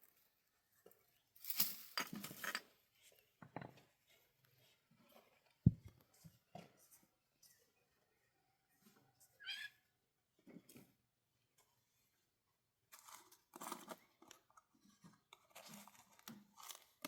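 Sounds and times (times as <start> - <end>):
rustling and scraping: 1.4 - 7.1.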